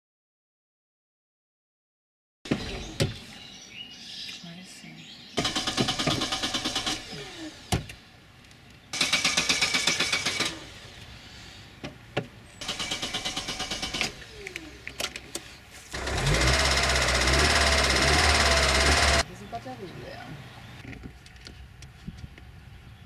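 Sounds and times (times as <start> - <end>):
starter motor cranking: 5.4 - 7.7, 9.0 - 10.8, 12.6 - 19.3
car engine running: 12.6 - 19.3.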